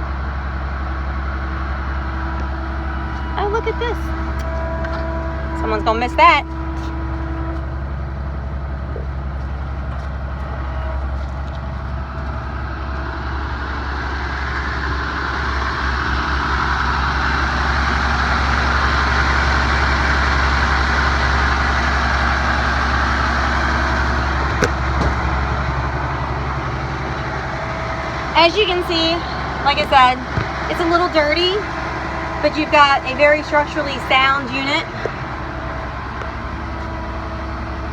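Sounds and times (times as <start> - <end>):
diesel truck engine idling: 0.0 - 37.9.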